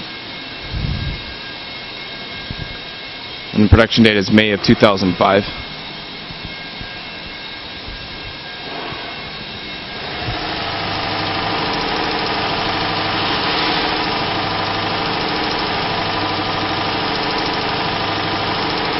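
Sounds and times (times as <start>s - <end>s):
truck engine idling: 10.0s - 18.9s
engine knock: 10.4s - 18.9s.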